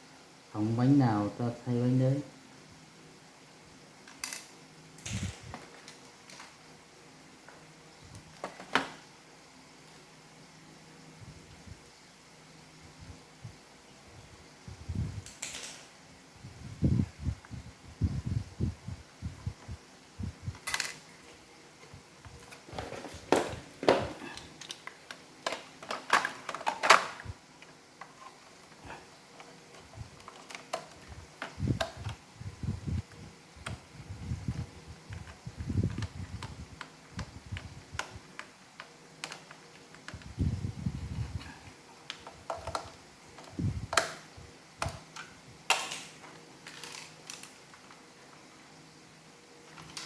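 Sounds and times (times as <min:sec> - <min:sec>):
plastic parts clicking and snapping: 0:20.6 - 0:21.0, 0:22.3 - 0:32.2, 0:35.1 - 0:40.3, 0:42.1 - 0:48.0.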